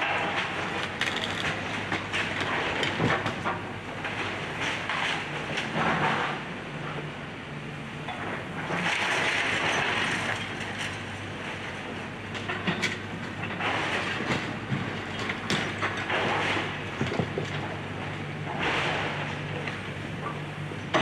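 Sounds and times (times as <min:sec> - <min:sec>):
excavator engine running: 0:00.0 - 0:07.3
debris crunching and clattering: 0:00.1 - 0:05.2.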